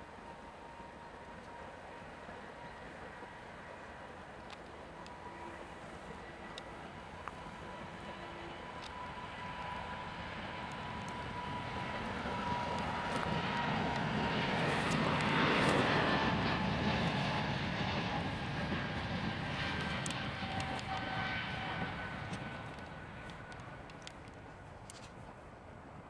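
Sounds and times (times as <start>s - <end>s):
jet engine whine: 0.0s - 26.0s
jet airliner passing by: 0.2s - 24.8s.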